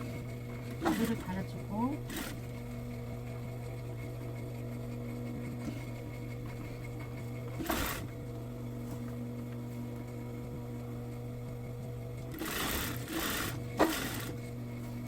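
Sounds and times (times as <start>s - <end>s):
sewing machine stitching: 0.0s - 2.7s, 5.6s - 8.1s, 12.2s - 14.5s.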